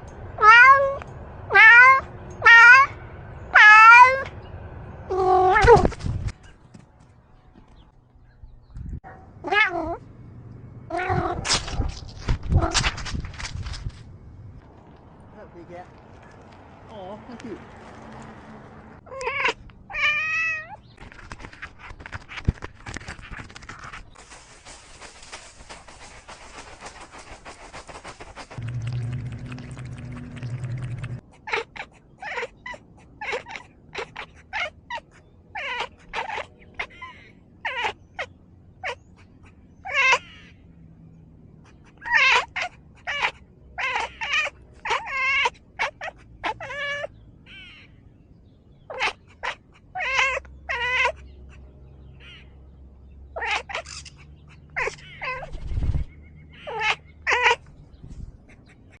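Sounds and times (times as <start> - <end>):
cat meowing: 0.4 - 2.9
low hum: 24.8 - 31.3.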